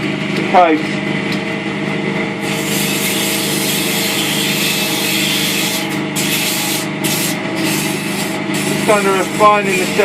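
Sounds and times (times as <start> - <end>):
lathe motor hum: 0.0 - 10.0
sandpaper hissing on spinning wood: 2.4 - 10.0.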